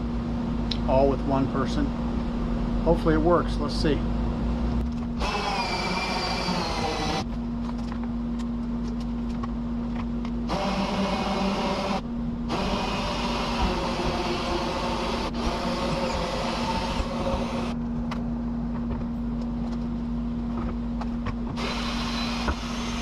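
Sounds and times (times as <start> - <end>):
steady low hum: 0.0 - 23.0
cordless drill whirring: 5.2 - 7.3, 10.5 - 17.8, 21.6 - 23.0.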